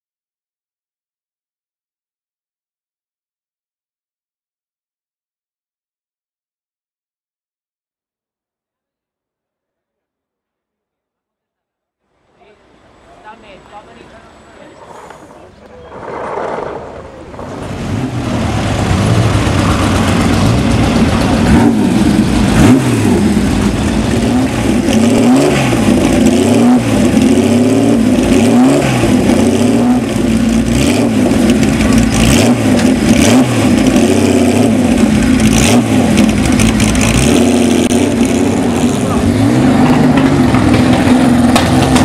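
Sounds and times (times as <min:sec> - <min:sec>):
car engine revving: 0:12.6 - 0:42.0.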